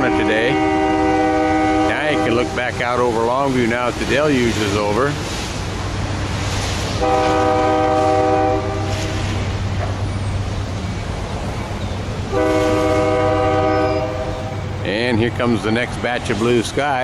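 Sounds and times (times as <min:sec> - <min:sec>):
locomotive air horn blasts: 0:00.0 - 0:02.8, 0:07.0 - 0:09.4, 0:12.3 - 0:14.6.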